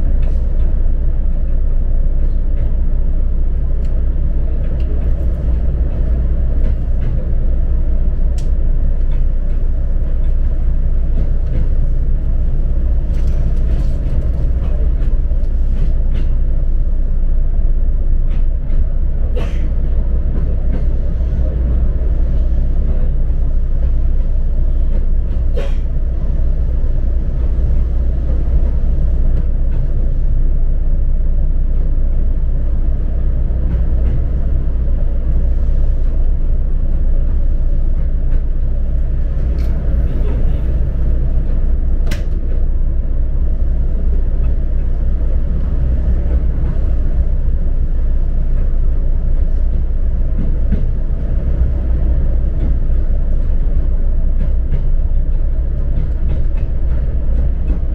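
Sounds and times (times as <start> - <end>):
train rumbling on rail: 0.0 - 57.9.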